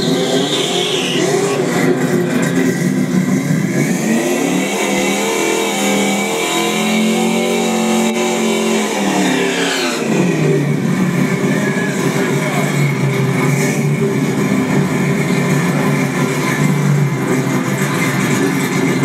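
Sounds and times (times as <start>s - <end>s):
race car engine revving: 0.0s - 19.0s.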